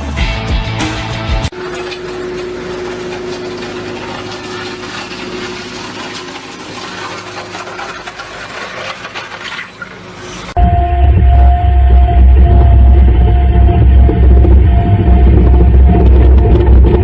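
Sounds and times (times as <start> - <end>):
constant machine hum: 1.5 - 17.0
machine rushing noise: 10.6 - 17.0.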